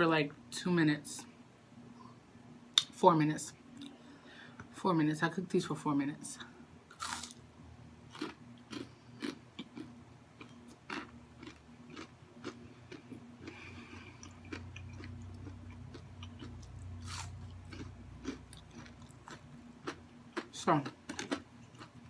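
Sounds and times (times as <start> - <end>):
chewing crunchy fried food: 6.9 - 7.4, 8.1 - 22.0.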